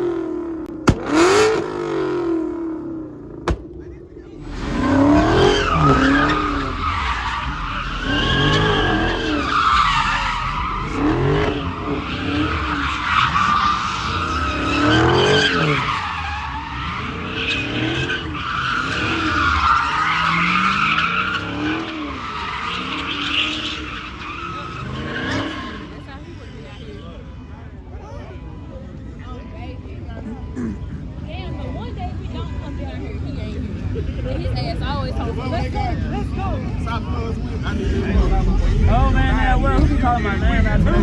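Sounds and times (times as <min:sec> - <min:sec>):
car engine revving: 0:00.0 - 0:26.1, 0:36.9 - 0:41.0
car tyres squealing: 0:00.0 - 0:27.3.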